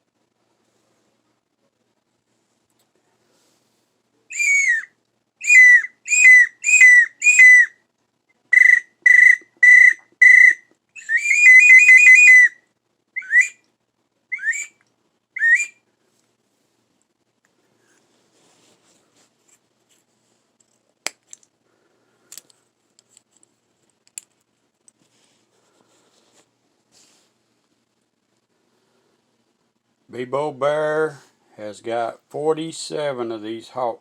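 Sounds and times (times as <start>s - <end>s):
brass bird call whistling: 4.3s - 7.8s, 8.5s - 12.6s, 13.2s - 13.6s, 14.3s - 14.8s, 15.4s - 15.8s.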